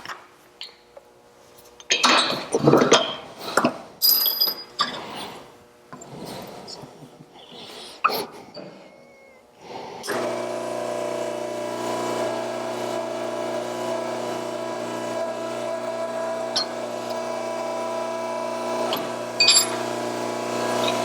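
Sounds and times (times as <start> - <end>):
electric machine humming: 8.8 - 21.0.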